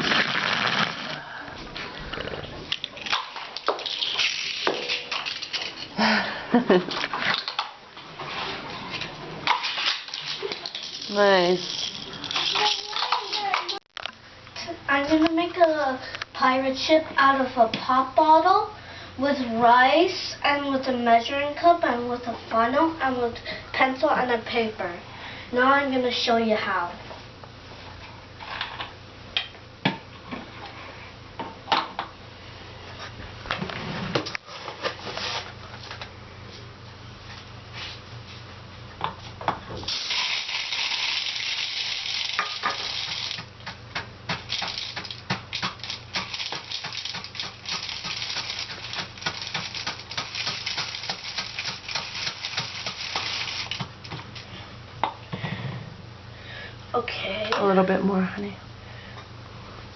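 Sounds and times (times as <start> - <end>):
rice pouring into plastic bottle: 0.0 - 1.2, 39.9 - 43.5, 44.5 - 53.8.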